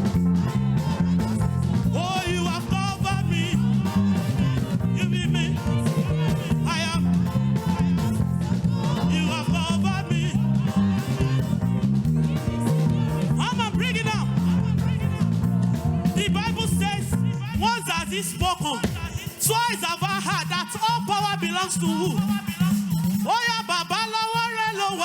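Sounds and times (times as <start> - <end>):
repeating bass line: 0.0 - 17.4
live band playing upbeat groove: 0.0 - 25.0.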